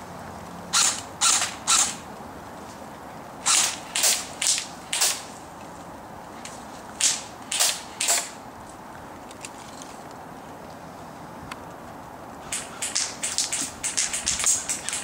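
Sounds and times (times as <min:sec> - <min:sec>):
airsoft rifle shots: 0:00.7 - 0:02.0, 0:03.4 - 0:05.3, 0:07.0 - 0:08.4, 0:12.5 - 0:15.0.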